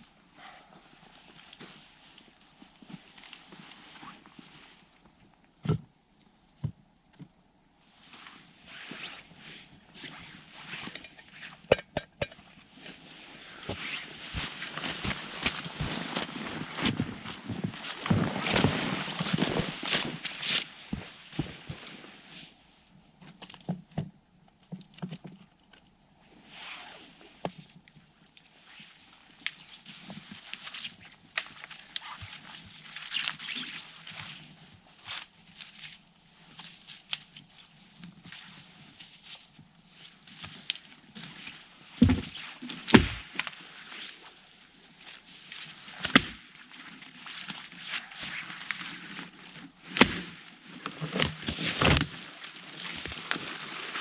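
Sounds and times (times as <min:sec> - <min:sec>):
rustling: 0:07.8 - 0:23.6, 0:26.3 - 0:54.0
clicks and knocks: 0:11.0 - 0:12.4
footsteps crunching in snow: 0:13.9 - 0:21.8.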